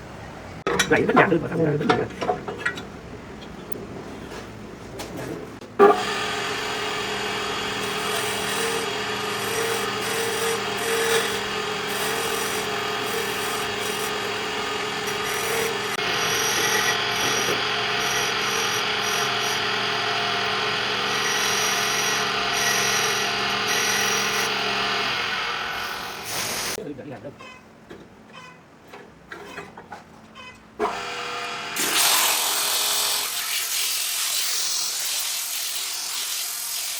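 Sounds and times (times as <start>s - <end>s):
power tool cutting wood: 5.8s - 26.8s, 30.8s - 36.9s.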